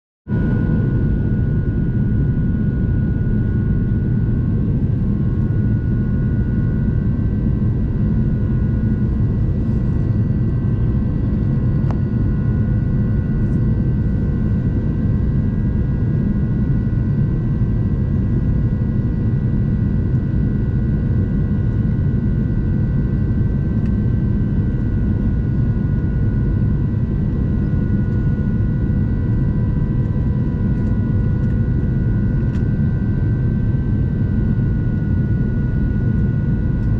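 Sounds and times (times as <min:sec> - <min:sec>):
aircraft cabin rumble: 0:00.3 - 0:36.9.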